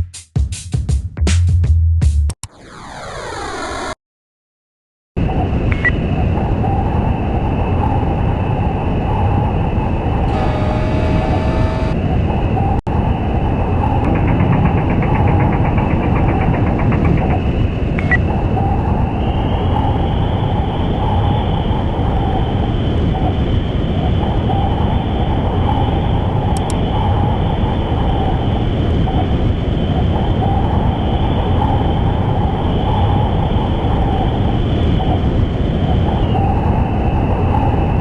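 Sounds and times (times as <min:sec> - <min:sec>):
high whine: 0:02.4 - 0:04.0, 0:10.1 - 0:16.5
mechanical drone: 0:02.4 - 0:04.0, 0:06.7 - 0:23.6.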